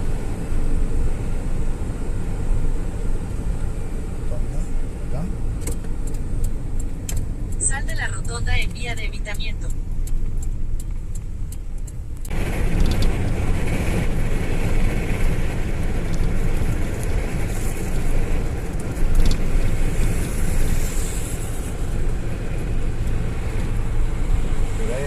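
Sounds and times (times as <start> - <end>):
car engine and tyre rumble: 0.0 - 25.0
faint regular clicks: 5.6 - 8.7, 9.3 - 13.2.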